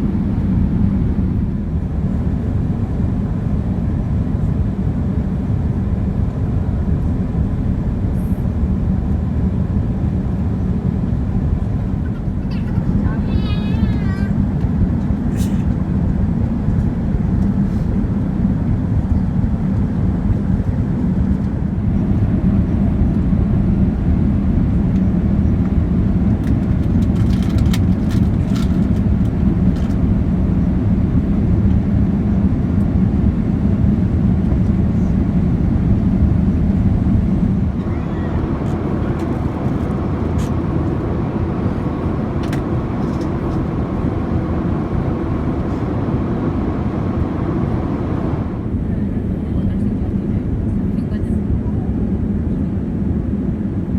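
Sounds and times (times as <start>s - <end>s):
airliner cabin rumble: 0.0s - 53.9s
faint hum: 28.6s - 52.8s.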